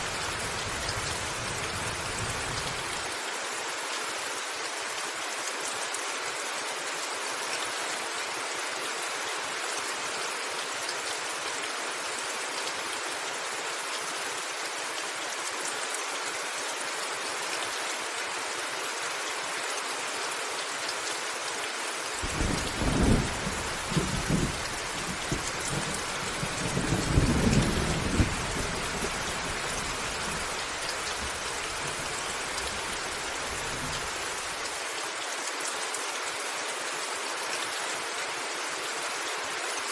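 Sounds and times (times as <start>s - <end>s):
rain falling on a roof: 0.0s - 39.9s
thunder rumble: 22.2s - 30.3s.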